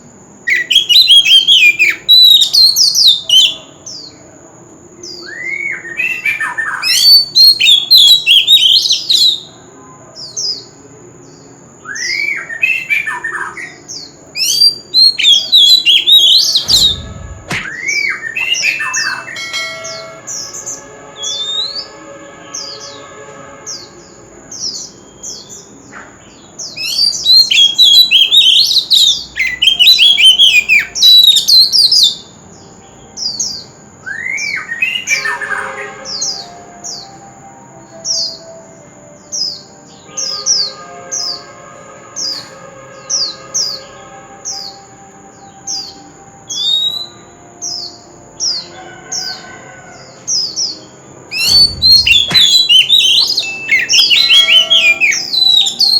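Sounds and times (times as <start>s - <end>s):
bird singing whistled phrases: 0.5s - 3.6s, 5.1s - 9.5s, 14.4s - 20.3s, 45.7s - 47.4s, 51.3s - 55.9s
thin high tone: 18.9s - 23.6s.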